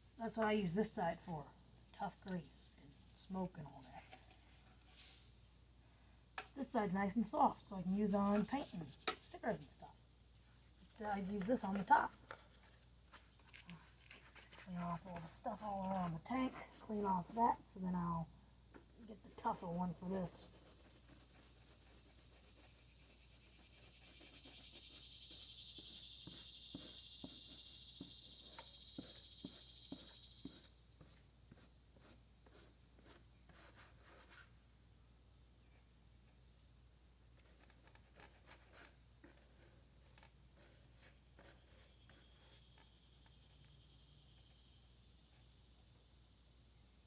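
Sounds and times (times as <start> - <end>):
crickets chirring: 0.0 - 47.0.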